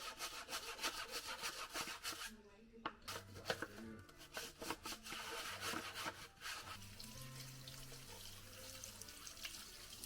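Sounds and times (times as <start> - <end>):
water running from sink tap: 6.5 - 10.0.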